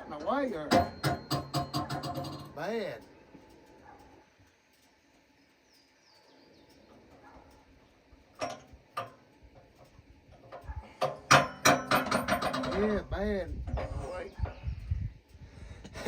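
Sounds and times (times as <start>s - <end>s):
faint bird chirp: 3.2s - 8.1s.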